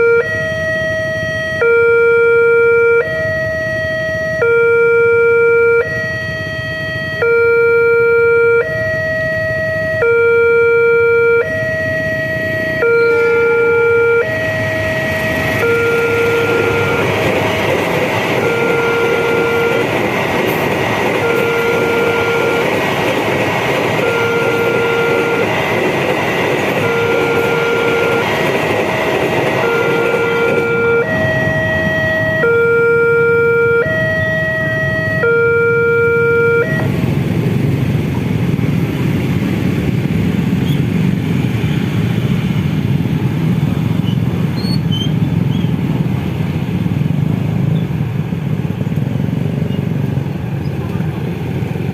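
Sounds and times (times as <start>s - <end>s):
level crossing two-tone alarm: 0.0s - 36.9s
freight train wheels rumbling: 11.4s - 51.9s.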